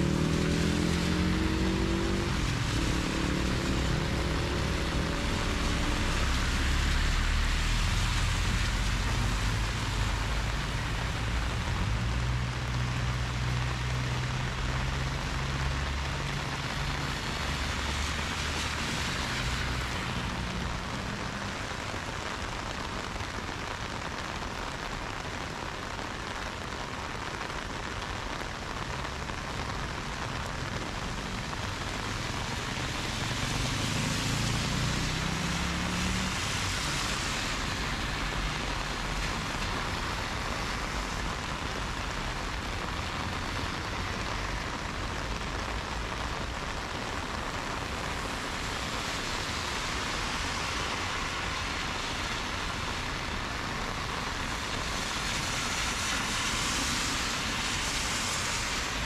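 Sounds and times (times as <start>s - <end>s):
car engine revving: 0.0s - 7.2s, 33.0s - 38.3s
heavy rain on road: 0.0s - 59.0s
tyres hissing on wet road: 0.0s - 59.0s.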